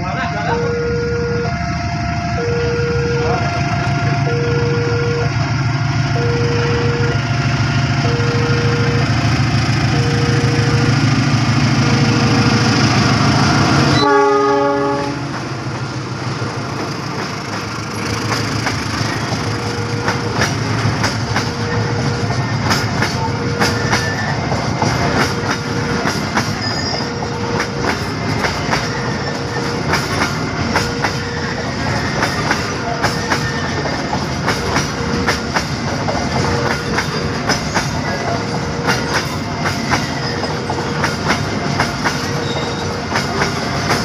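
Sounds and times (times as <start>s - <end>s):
diesel locomotive engine: 0.0s - 44.0s
train horn blast: 2.2s - 5.4s, 6.1s - 7.2s, 9.9s - 11.0s, 13.8s - 15.4s
wheels clicking over rail joints: 16.8s - 44.0s.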